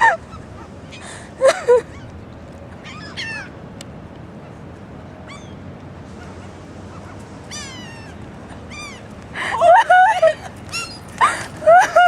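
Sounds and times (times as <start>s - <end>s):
birds calling: 0.0s - 3.6s, 4.3s - 12.0s.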